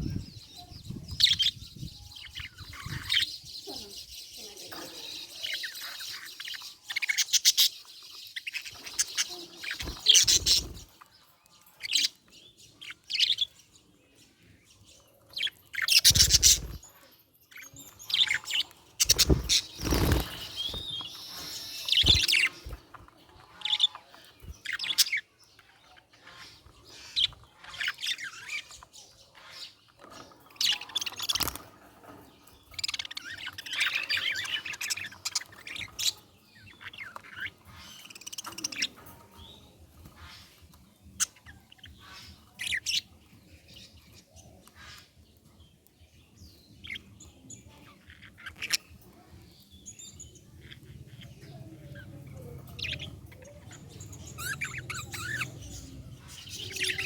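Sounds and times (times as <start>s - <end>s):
budgerigar chirping: 54.2s - 57.0s.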